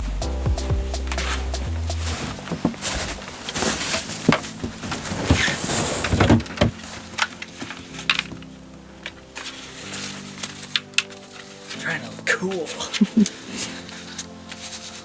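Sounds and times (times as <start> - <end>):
faint background music: 0.0 - 15.0
scraping and crunching: 2.0 - 11.9.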